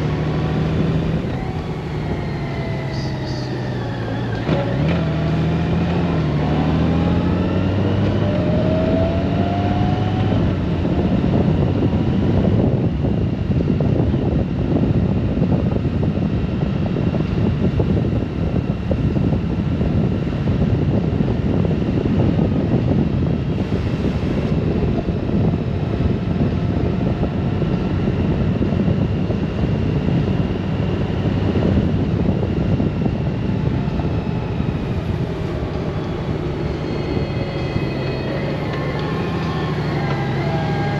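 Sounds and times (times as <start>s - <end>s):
motorcycle engine accelerating: 0.0s - 40.9s
wind and road rush: 0.0s - 40.9s.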